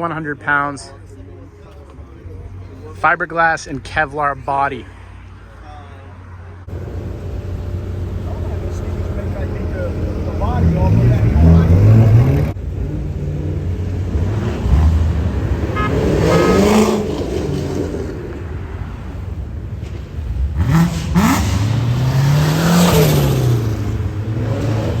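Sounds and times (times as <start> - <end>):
car engine revving: 6.6 - 25.0.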